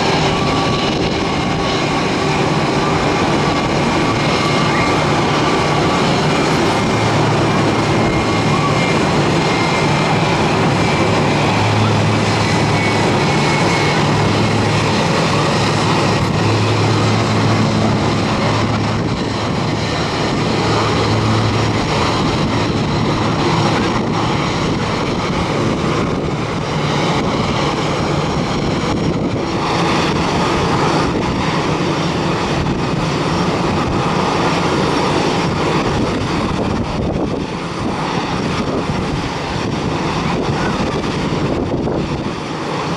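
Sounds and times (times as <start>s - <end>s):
airliner engines: 0.0s - 42.9s
wind buffeting microphone: 0.0s - 42.9s.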